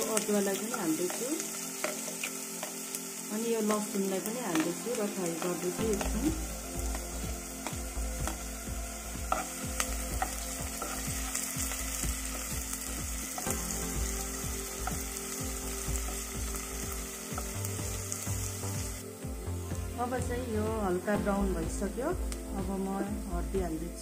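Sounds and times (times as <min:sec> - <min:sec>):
spatula stirring in pan: 0:00.0 - 0:03.0, 0:03.8 - 0:17.6
food sizzling in hot oil: 0:00.0 - 0:24.0.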